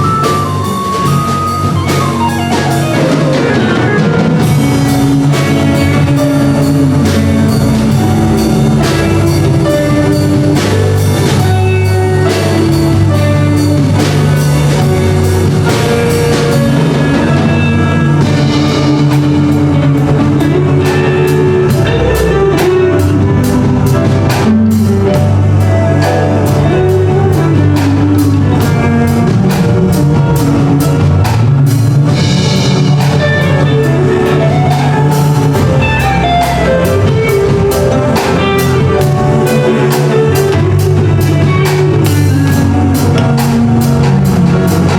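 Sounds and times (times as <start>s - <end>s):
drum kit beat: 0.0s - 44.9s
live band music: 0.0s - 44.9s.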